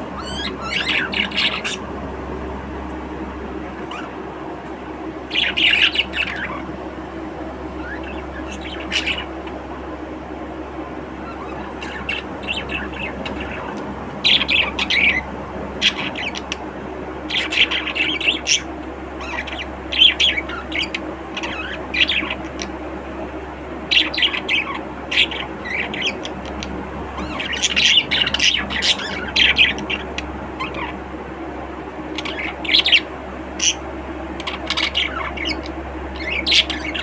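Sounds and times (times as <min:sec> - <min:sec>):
budgerigars chattering and chirping: 0:00.0 - 0:01.8, 0:03.8 - 0:04.2, 0:05.3 - 0:06.7, 0:07.8 - 0:09.6, 0:11.2 - 0:16.6, 0:17.2 - 0:22.8, 0:23.8 - 0:31.0, 0:32.1 - 0:33.8, 0:34.4 - 0:37.0
steady low hum: 0:00.0 - 0:37.0.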